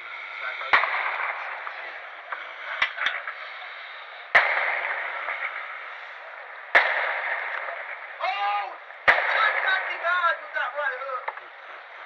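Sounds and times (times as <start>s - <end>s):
loud firework bang echoing: 0.0s - 3.4s, 4.3s - 10.4s
firework cracks: 0.0s - 12.0s.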